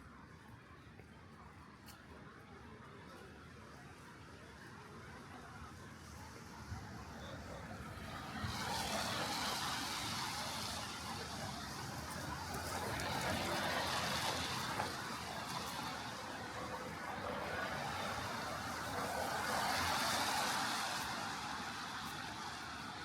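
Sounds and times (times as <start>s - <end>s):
car tyres hissing on wet road: 5.9s - 23.0s.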